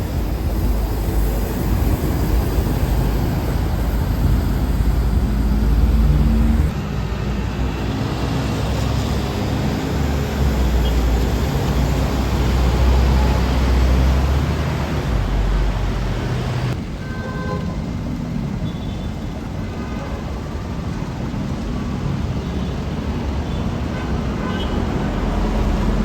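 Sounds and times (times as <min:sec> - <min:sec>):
vehicle engine rumble: 0:00.0 - 0:17.0, 0:24.5 - 0:26.0
road noise: 0:00.0 - 0:26.0.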